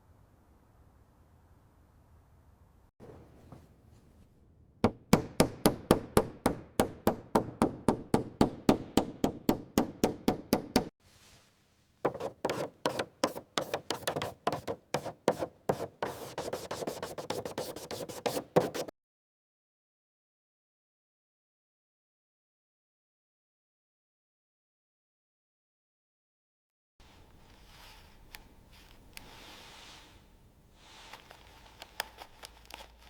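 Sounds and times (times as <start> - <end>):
hand tool rubbing a surface: 12.1 - 18.9.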